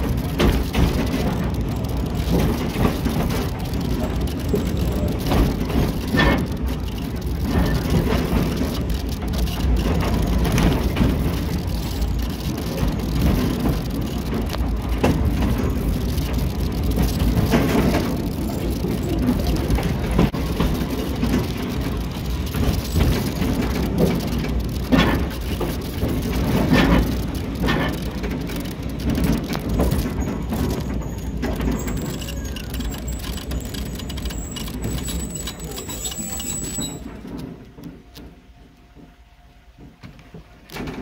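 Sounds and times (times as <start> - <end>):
train rumbling and clattering: 0.0 - 41.0
thin high brake squeal: 30.9 - 37.2.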